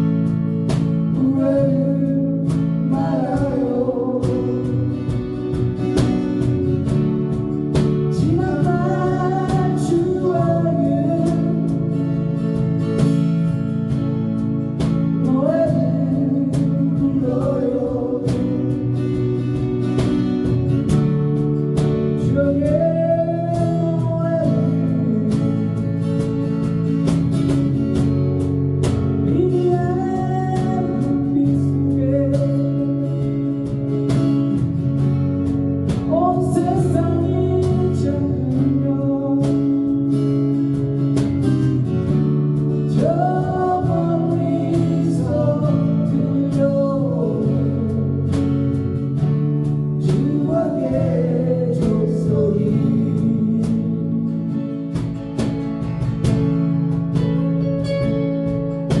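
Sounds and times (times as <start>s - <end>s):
guitar chords: 0.0s - 59.0s
person singing: 1.0s - 5.3s, 8.0s - 12.1s, 15.1s - 19.4s, 22.2s - 26.0s, 29.2s - 34.6s, 36.0s - 40.8s, 42.9s - 48.8s, 49.9s - 55.0s.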